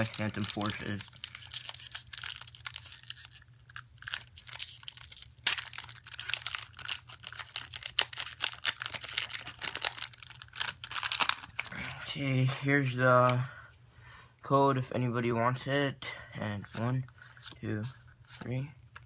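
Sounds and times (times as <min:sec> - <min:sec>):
foil wrapper tearing and crinkling: 0:00.0 - 0:11.8.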